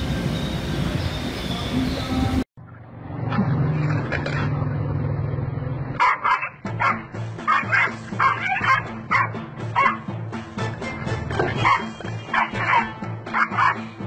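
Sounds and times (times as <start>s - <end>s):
background music: 6.0s - 14.0s.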